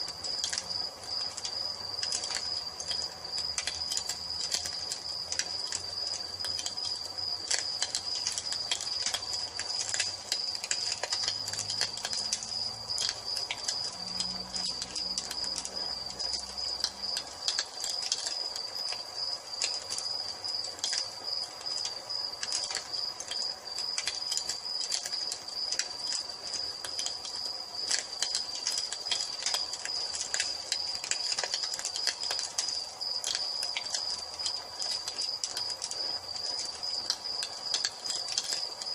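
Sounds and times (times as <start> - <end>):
crickets trilling: 0.0 - 38.9
wood fire crackling and popping: 0.0 - 38.9.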